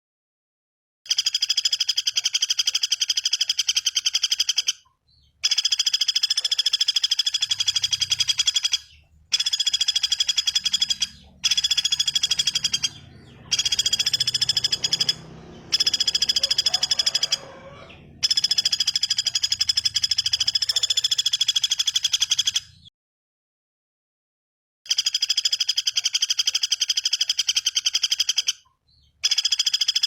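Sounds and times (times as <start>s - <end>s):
bird trilling: 1.5s - 22.9s.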